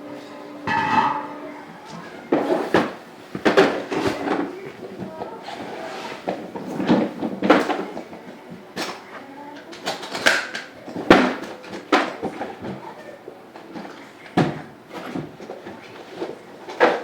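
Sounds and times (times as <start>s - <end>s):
objects knocking and clattering: 0.6s - 13.0s.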